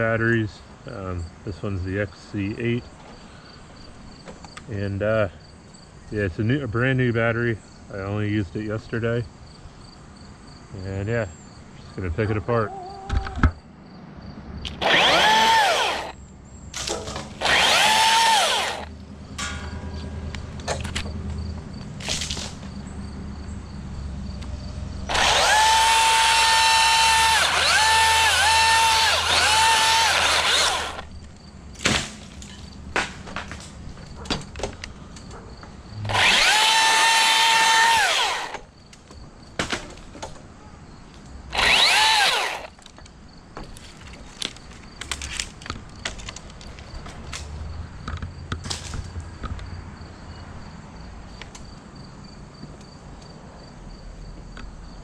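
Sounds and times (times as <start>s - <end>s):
battery chainsaw whining: 14.7s - 16.2s, 16.8s - 19.0s, 25.1s - 31.2s, 36.0s - 38.7s, 41.5s - 42.9s.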